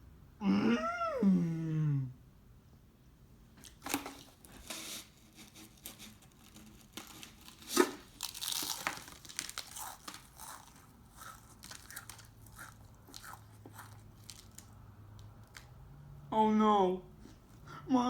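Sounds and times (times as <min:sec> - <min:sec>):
packaging crinkling: 0:03.6 - 0:15.7
tearing crinkle: 0:03.6 - 0:15.7.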